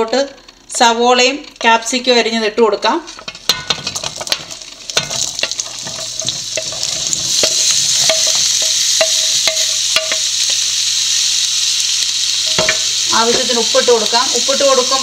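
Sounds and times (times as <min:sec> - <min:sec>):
vegetables sizzling in hot oil: 0:03.2 - 0:15.0.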